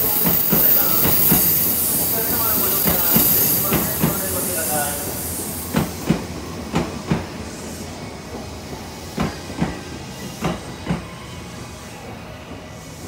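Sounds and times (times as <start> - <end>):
train wheels clicking over rail joints: 0.0 - 7.4, 8.3 - 11.1
train rolling rumble: 0.0 - 13.0.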